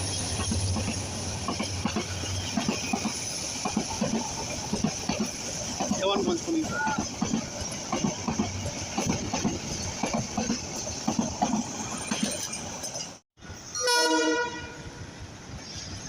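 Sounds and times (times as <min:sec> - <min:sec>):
wheels clattering on rail: 0:00.0 - 0:14.7
train rumbling past: 0:00.0 - 0:16.0
locomotive horn blowing: 0:13.7 - 0:15.0.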